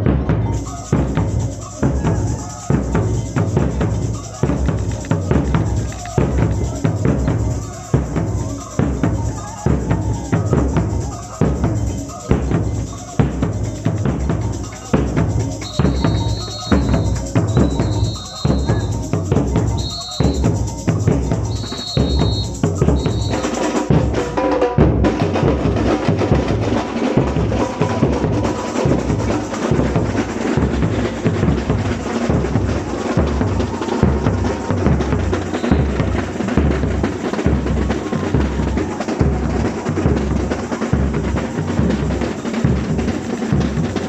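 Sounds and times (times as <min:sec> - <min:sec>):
samba percussion drumming: 0:00.0 - 0:44.0
short high-pitched whistle blasts: 0:15.6 - 0:19.0, 0:19.7 - 0:20.8, 0:21.5 - 0:23.6.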